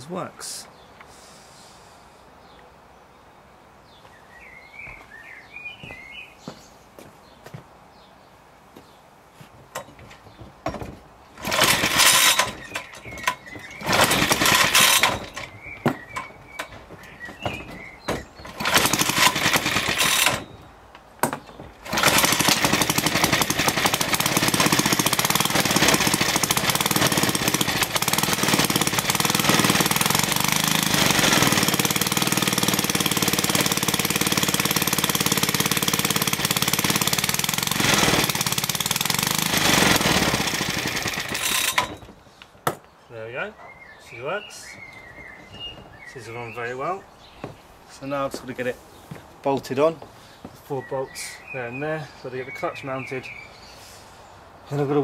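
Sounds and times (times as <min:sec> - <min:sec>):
lawnmower engine starting: 0:09.8 - 0:20.7, 0:21.5 - 0:42.2.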